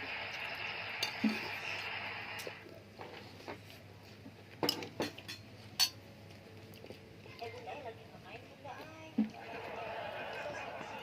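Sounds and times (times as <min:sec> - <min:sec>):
steady hiss: 0:00.0 - 0:02.7
utensils clinking against bowl: 0:04.6 - 0:06.0.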